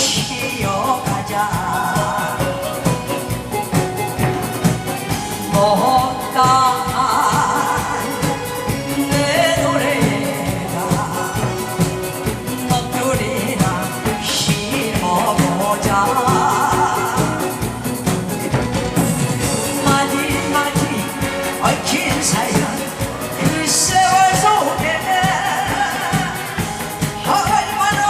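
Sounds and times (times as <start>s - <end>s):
amplified backing track with beat: 0.0s - 28.0s
person singing live: 0.0s - 28.0s.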